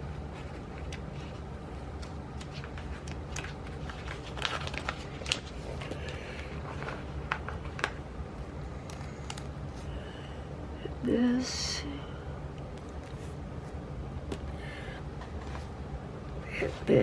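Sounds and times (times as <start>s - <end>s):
steady low hum: 0.0s - 17.0s
paper rustling and clicks: 0.3s - 8.0s, 8.8s - 9.5s.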